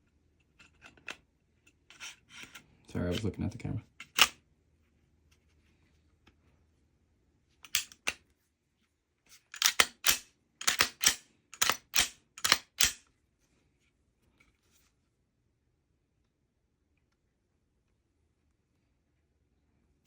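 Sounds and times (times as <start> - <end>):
pistol metallic clicks: 4.0 - 4.4, 7.6 - 8.2, 9.5 - 13.0.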